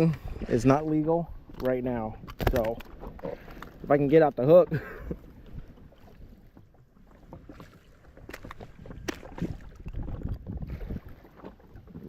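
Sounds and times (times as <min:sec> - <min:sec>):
water sloshing: 0:00.0 - 0:12.0
wind rumble on microphone: 0:08.3 - 0:12.0.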